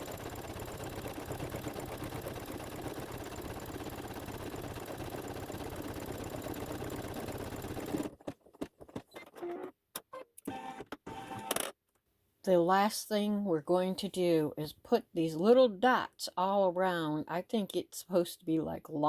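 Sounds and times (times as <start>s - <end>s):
embroidery machine stitching: 0.0s - 9.7s, 10.4s - 11.7s.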